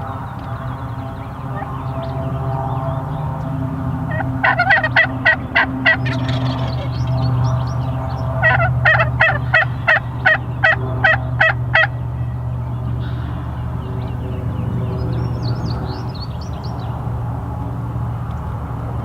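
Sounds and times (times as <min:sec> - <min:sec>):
steady low hum: 0:00.0 - 0:19.0
turkey yelps: 0:04.1 - 0:07.0, 0:08.4 - 0:12.0.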